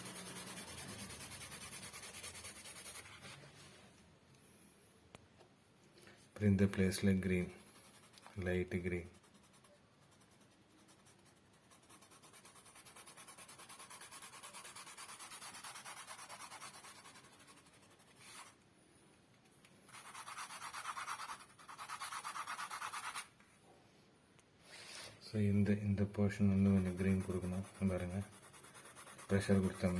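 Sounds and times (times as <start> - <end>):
pencil scratching on paper: 0.0 - 3.5, 6.9 - 18.6, 19.9 - 23.3, 26.4 - 29.9.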